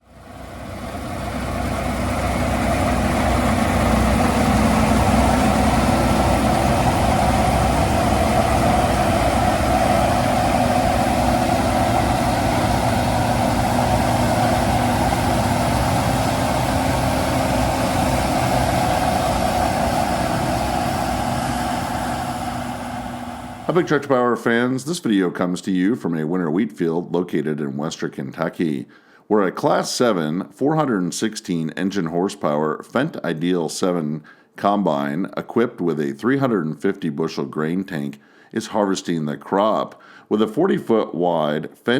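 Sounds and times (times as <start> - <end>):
combine harvester running: 0.0 - 24.0.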